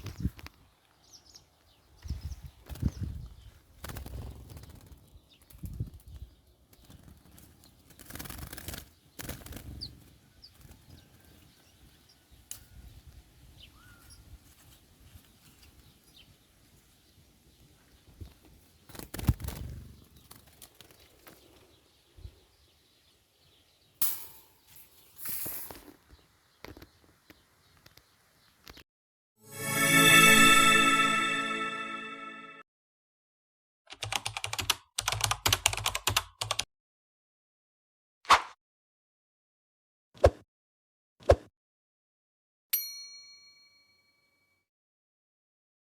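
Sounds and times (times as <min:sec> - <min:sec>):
small birds wings flapping: 0:02.5 - 0:12.0, 0:17.5 - 0:22.3
faint bird chirps: 0:09.1 - 0:16.6.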